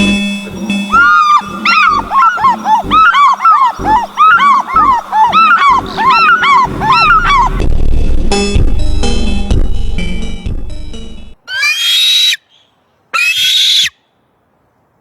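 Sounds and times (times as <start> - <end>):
birds screaming: 0.0 - 7.6, 11.5 - 14.1.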